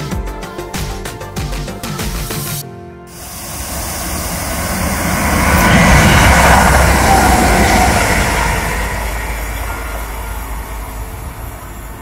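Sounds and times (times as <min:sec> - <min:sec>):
electric train passing: 0:03.1 - 0:12.0.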